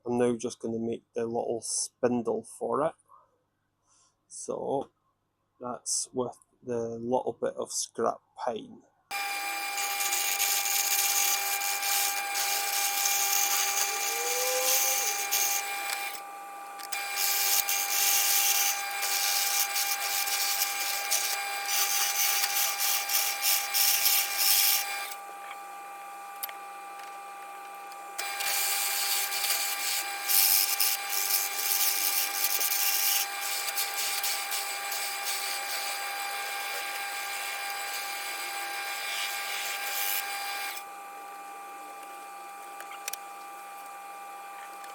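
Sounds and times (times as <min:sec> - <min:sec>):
hissing wood cutting: 0:09.1 - 0:43.3
power tool motor whine: 0:09.1 - 0:44.9.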